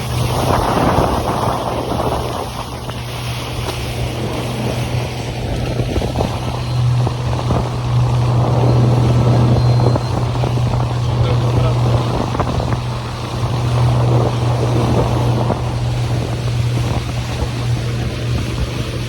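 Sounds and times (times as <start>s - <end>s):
motorboat engine running: 0.0s - 19.0s
water splashing against hull: 0.0s - 19.0s
wind buffeting microphone: 0.0s - 19.0s.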